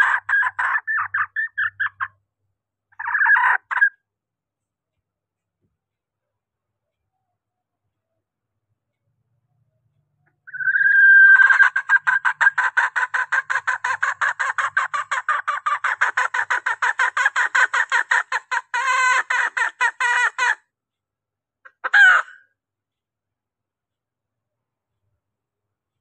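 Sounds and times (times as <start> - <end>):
hen clucking: 0.0 - 2.1, 3.0 - 3.9, 10.5 - 20.6, 21.7 - 22.4.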